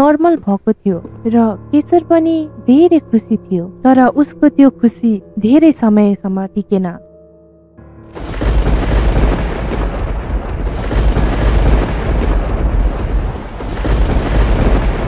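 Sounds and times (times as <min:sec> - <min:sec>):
thunder rumbling: 0:08.0 - 0:15.0
rain hiss: 0:08.2 - 0:15.0.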